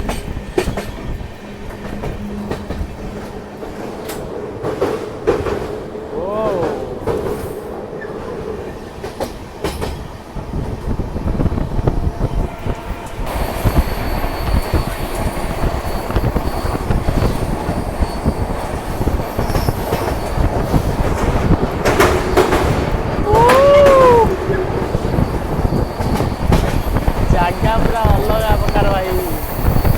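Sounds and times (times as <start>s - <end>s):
train wheels rumbling and clacking: 0.0s - 29.9s
high steady wheel squeal: 11.5s - 29.9s.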